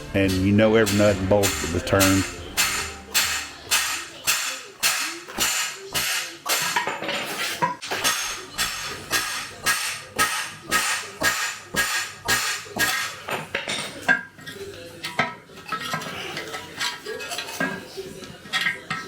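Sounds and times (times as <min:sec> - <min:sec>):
hammer clanging on metal: 0:00.2 - 0:07.0, 0:07.8 - 0:13.2.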